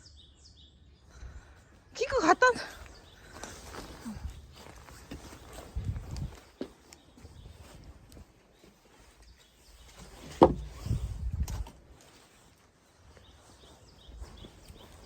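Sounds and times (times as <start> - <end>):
faint rustling: 2.7 - 15.0
dull thumps: 10.0 - 11.6.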